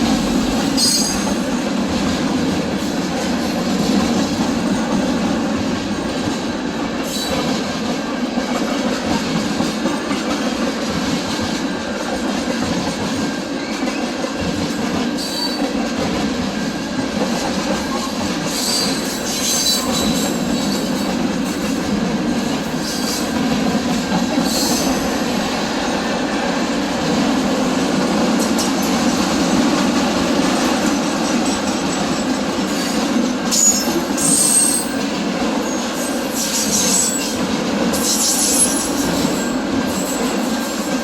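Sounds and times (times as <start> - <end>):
train wheels rumbling on rails: 0.0 - 41.0
high wheel squeals: 33.5 - 35.0.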